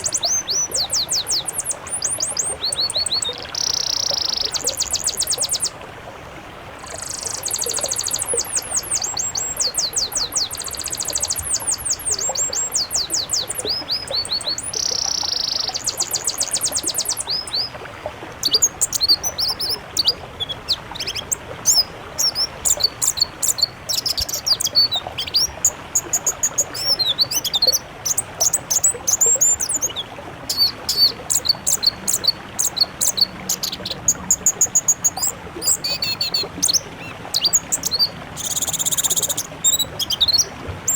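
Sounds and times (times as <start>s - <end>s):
songbirds singing: 0.0s - 5.8s, 6.8s - 17.8s, 18.4s - 40.9s.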